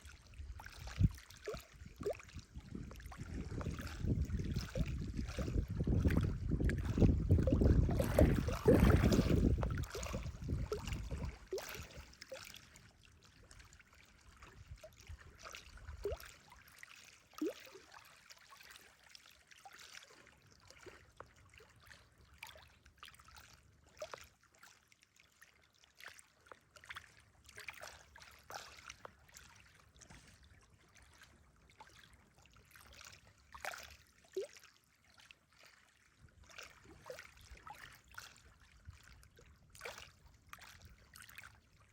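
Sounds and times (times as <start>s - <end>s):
small waves lapping: 0.0s - 41.9s
wind buffeting microphone: 1.8s - 11.5s.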